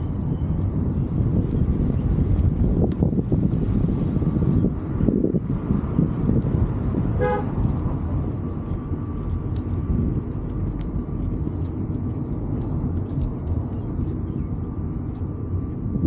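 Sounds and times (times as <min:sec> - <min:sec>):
wind and riding noise rumble: 0:00.0 - 0:16.0
vehicle horn toot: 0:07.2 - 0:07.5.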